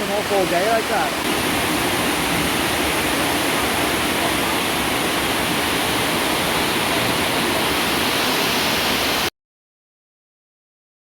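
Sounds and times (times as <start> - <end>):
heavy rain falling: 0.0 - 9.3.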